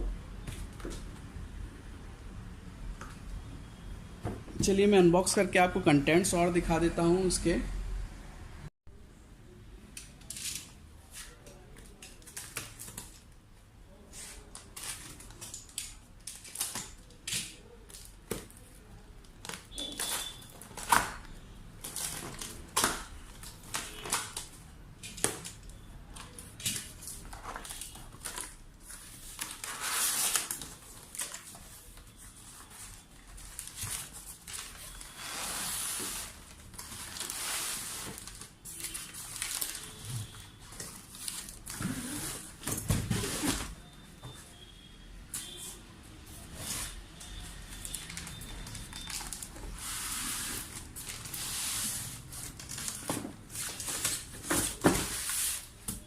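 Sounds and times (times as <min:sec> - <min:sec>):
cardboard rustling and scraping: 0:26.8 - 0:43.8, 0:49.1 - 0:56.0.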